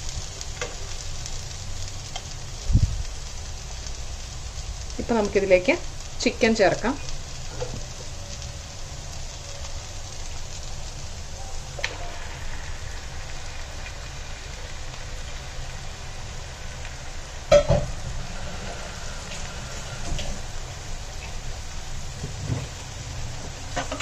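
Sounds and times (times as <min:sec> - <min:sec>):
masala sizzling in a pan: 0:00.0 - 0:24.0
knock on pan: 0:17.5 - 0:17.9.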